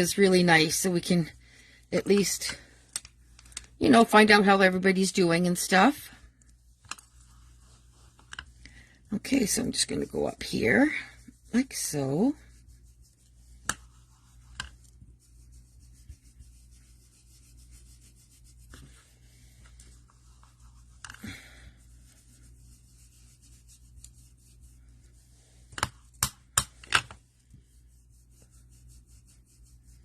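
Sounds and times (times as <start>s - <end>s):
ink tool rubbing on card: 5.4s - 8.7s, 9.3s - 26.2s.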